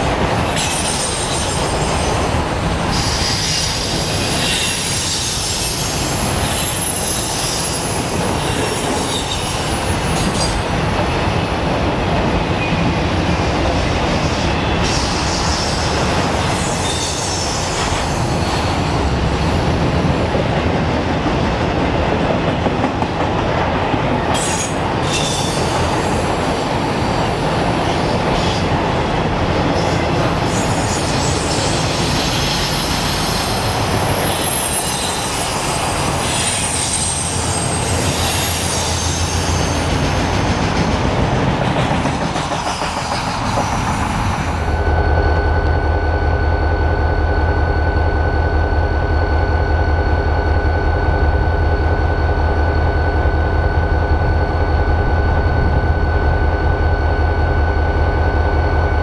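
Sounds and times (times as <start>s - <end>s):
train wheels rumbling on rail: 0.0s - 59.0s
high wheel squeal: 0.4s - 2.3s, 2.9s - 10.6s, 14.3s - 19.6s, 24.4s - 27.2s, 29.7s - 40.0s.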